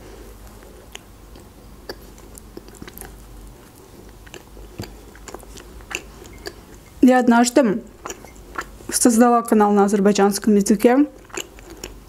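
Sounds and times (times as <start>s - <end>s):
chewing soft pastry: 0.0s - 7.0s, 7.8s - 9.2s, 11.1s - 12.0s.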